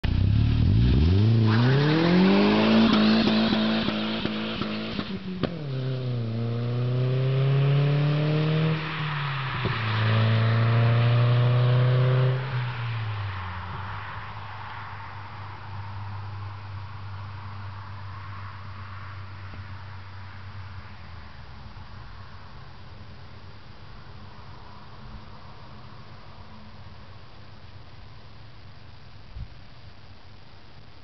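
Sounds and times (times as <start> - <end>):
car engine pulling away hard: 0.1 - 12.7.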